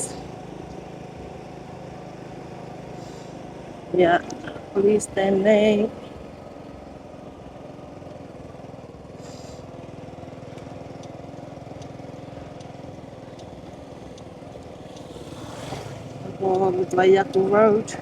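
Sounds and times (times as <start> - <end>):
small motorbike engine running: 0.0 - 18.0.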